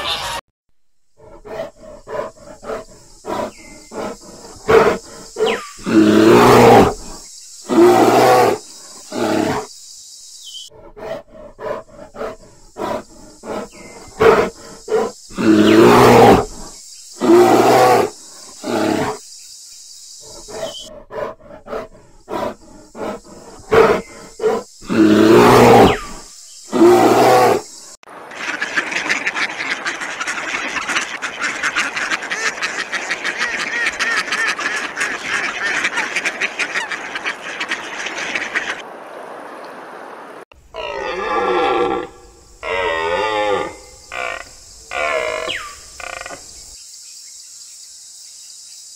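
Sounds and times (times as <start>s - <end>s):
bear growling and grunting: 1.2s - 9.7s, 10.7s - 19.2s, 20.3s - 27.7s.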